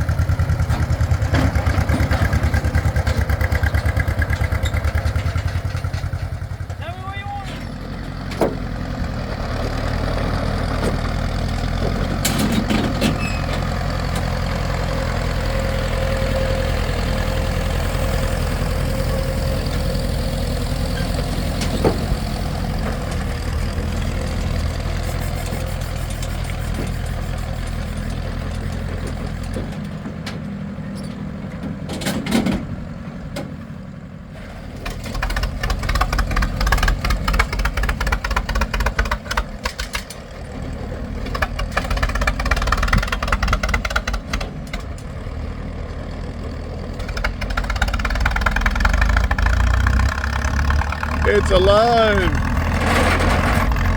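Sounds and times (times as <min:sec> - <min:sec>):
engine running with low hum: 0:00.0 - 0:53.9.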